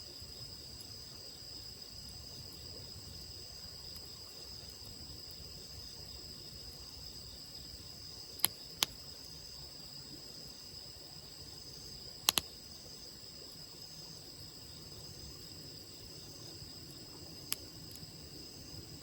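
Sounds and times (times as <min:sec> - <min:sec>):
insects chirring: 0:00.0 - 0:19.0
campfire pops: 0:08.4 - 0:09.0, 0:12.2 - 0:12.6, 0:17.1 - 0:18.2.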